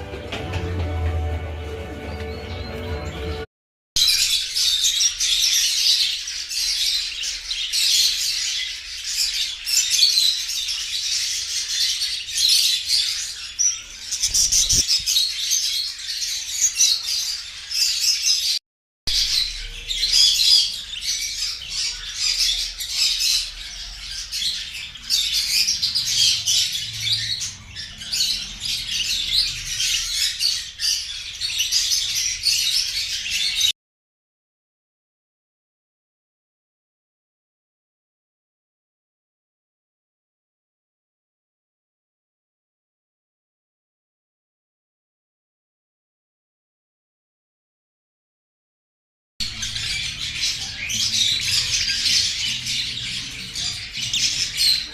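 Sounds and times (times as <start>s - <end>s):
birds chirping and squawking: 0.0s - 33.7s, 49.4s - 54.9s.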